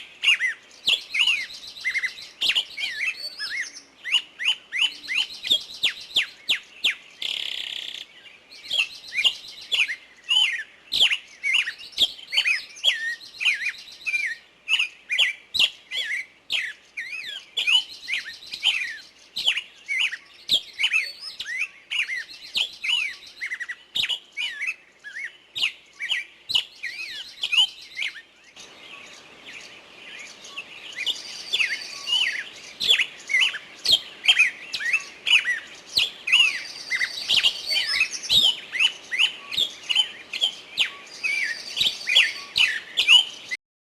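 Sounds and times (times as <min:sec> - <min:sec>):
bird trills: 0:00.0 - 0:43.6
songbirds chirping and singing: 0:00.0 - 0:43.6
harsh bird call: 0:08.7 - 0:43.6.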